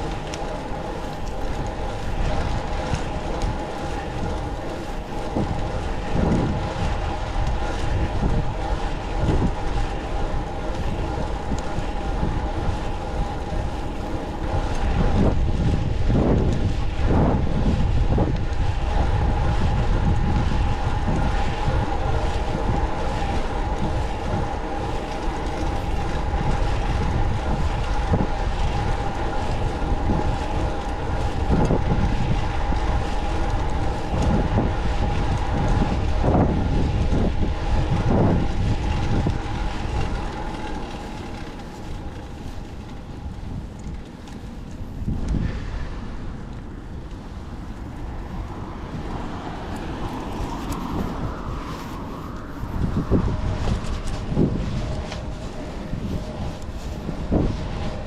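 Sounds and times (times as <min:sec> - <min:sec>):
bicycle rolling rumble and whine: 0:00.0 - 0:58.0
wind gusts on microphone: 0:00.0 - 0:58.0.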